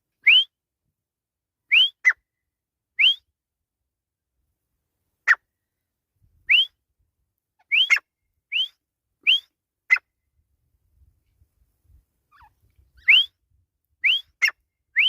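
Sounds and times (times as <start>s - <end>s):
francolin calling: 7.6s - 9.5s, 12.3s - 13.3s, 14.0s - 15.0s.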